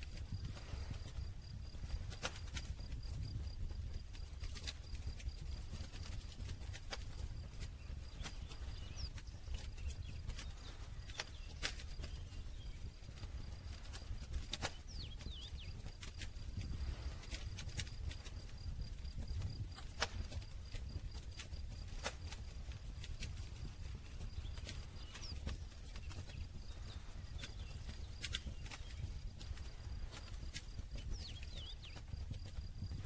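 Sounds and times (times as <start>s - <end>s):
campfire crackling and popping: 0.0s - 33.0s
low rumble of flames: 0.0s - 33.0s.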